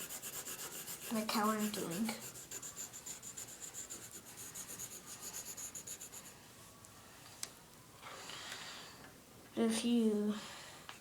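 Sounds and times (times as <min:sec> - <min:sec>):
pencil scribbling on paper: 0:00.0 - 0:06.4.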